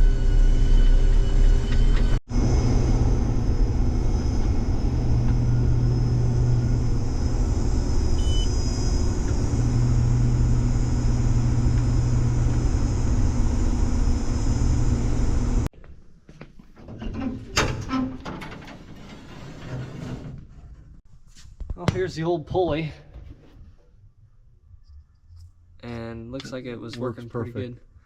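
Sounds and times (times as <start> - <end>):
combine harvester humming: 0.0 - 15.7.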